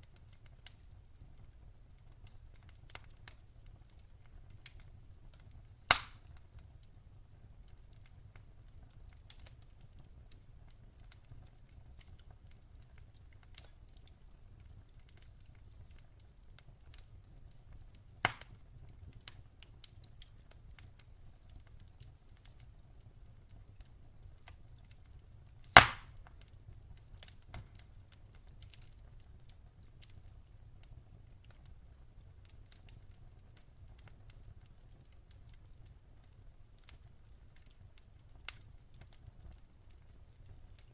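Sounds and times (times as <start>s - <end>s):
campfire crackling: 0.0s - 40.9s.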